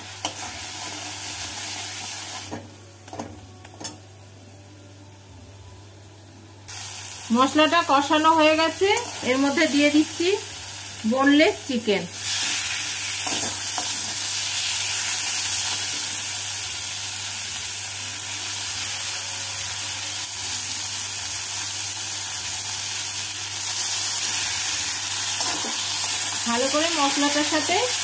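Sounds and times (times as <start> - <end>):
oil sizzling in a pan: 0.0 - 2.8, 6.7 - 28.0.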